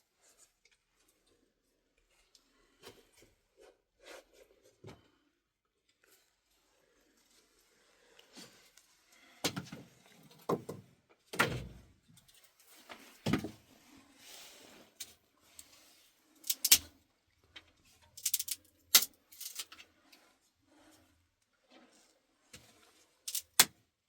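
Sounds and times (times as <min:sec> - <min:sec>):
objects knocking and clattering: 0:10.4 - 0:11.7.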